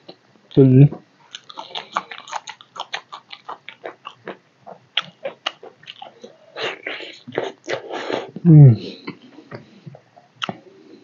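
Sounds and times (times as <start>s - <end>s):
person chewing food: 1.3s - 8.3s.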